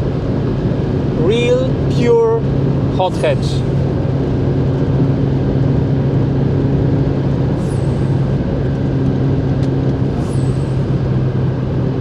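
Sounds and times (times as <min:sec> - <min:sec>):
car engine at steady revs: 0:00.0 - 0:12.0
road and tyre noise: 0:00.0 - 0:12.0.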